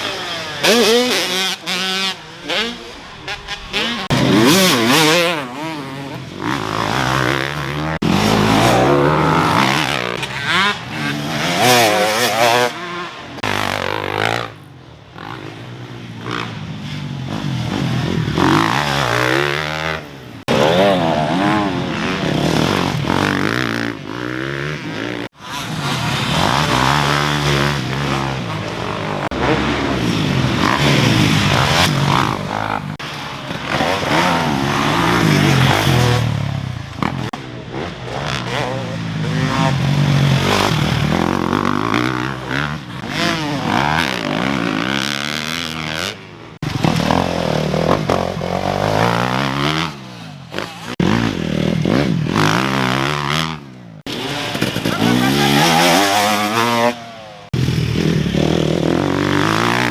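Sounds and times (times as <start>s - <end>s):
dirt bike engine revving: 0.0s - 14.6s, 15.2s - 59.9s.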